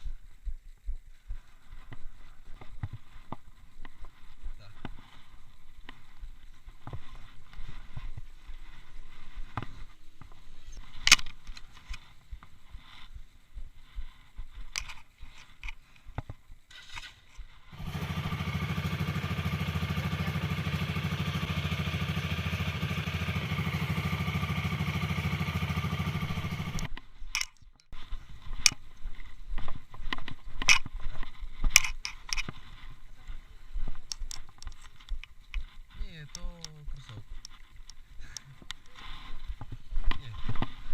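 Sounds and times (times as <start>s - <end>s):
small motorcycle engine running: 17.7s - 26.9s.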